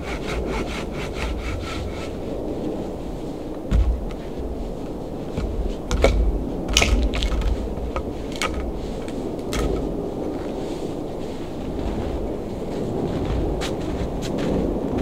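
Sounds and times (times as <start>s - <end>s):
steady low rumble: 0.0s - 15.0s
wood cracking and snapping: 5.4s - 8.8s.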